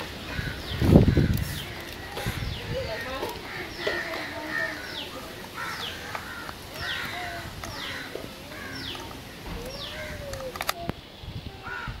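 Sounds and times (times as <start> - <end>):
birds calling: 0.0 - 12.0
sharp clicks: 8.9 - 11.0.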